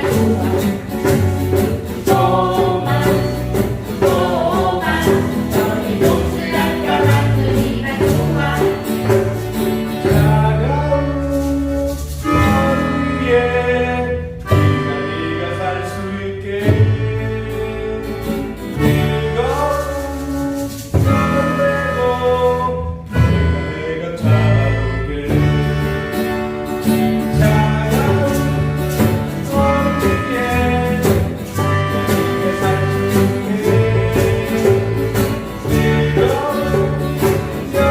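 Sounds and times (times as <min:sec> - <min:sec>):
group singing: 0:00.0 - 0:11.0, 0:12.2 - 0:21.2, 0:21.8 - 0:26.0, 0:27.3 - 0:37.9
steady percussion beat: 0:00.0 - 0:13.1, 0:18.7 - 0:21.8, 0:26.8 - 0:37.9
instrumental accompaniment: 0:00.0 - 0:37.9.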